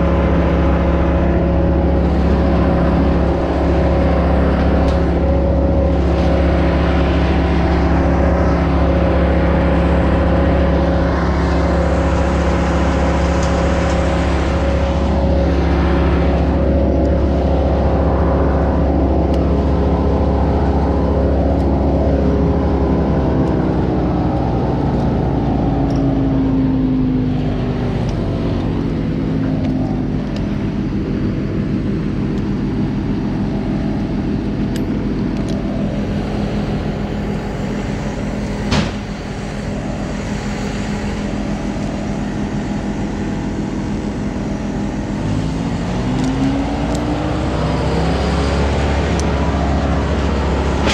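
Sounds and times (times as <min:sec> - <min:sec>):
engine running: 0:00.0 - 0:50.9
sharp knock: 0:38.7 - 0:39.0.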